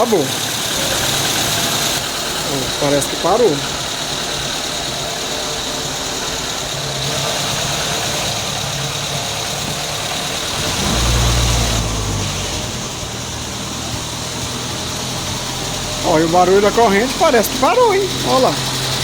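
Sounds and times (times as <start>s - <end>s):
car engine idling: 0.0s - 19.0s
engine knocking: 0.0s - 19.0s.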